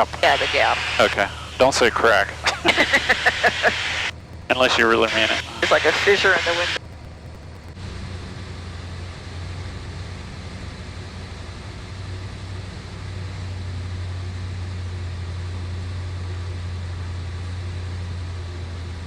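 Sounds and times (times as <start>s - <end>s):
air hiss in cabin: 0.0s - 6.8s
airplane engine hum: 0.0s - 19.0s.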